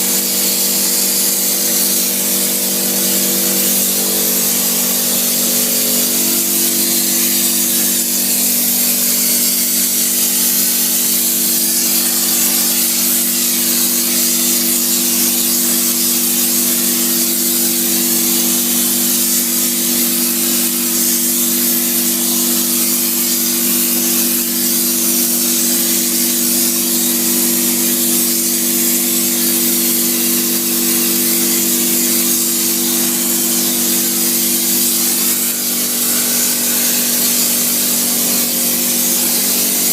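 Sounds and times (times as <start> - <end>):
spray hissing: 0.0 - 39.9
machine hum: 31.0 - 39.9.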